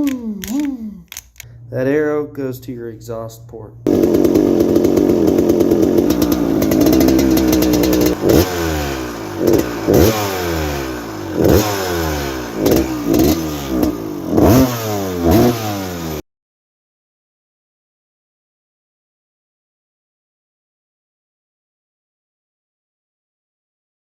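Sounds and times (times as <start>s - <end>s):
two-stroke engine revving: 3.9s - 16.2s.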